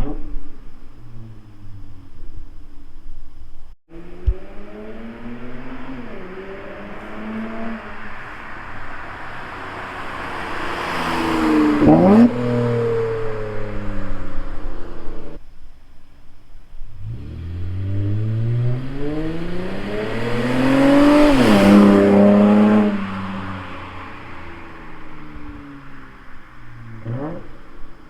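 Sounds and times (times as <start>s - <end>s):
car engine accelerating: 3.9s - 15.4s, 16.9s - 28.0s.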